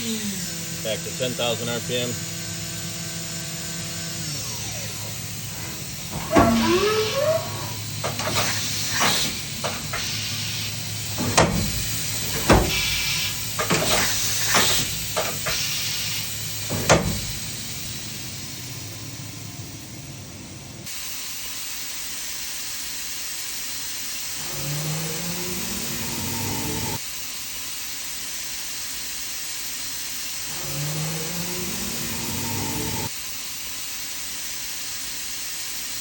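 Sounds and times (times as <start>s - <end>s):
machine humming: 0.0s - 20.9s, 24.4s - 27.0s, 30.5s - 33.1s
rising machine whine: 1.8s - 20.9s, 30.5s - 33.1s
sharp mechanical clunks: 4.4s - 18.1s
air hiss: 4.4s - 18.8s.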